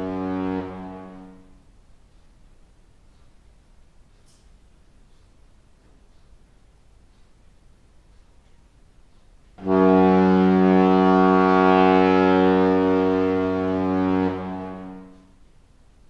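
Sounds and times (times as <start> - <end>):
ship's horn blast: 0.0 - 1.7, 9.6 - 15.4.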